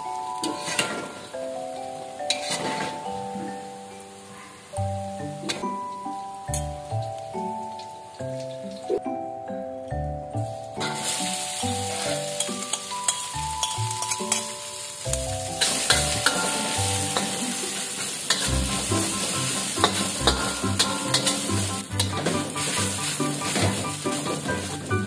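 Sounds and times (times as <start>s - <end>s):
soft instrumental music: 0.0s - 25.0s
metal ladle scraping wok: 0.4s - 1.2s, 2.3s - 3.0s, 10.8s - 24.8s
paste sizzling in hot oil: 10.8s - 25.0s.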